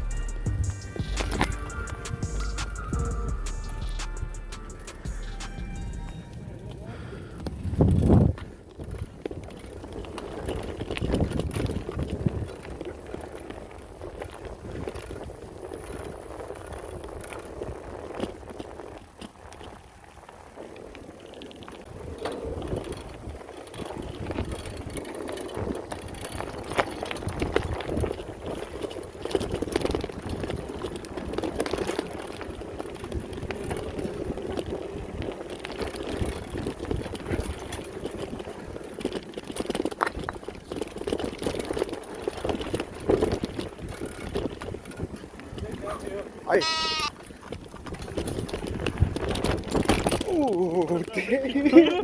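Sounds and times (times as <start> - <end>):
bike rattling over bumps: 0.0 - 52.0.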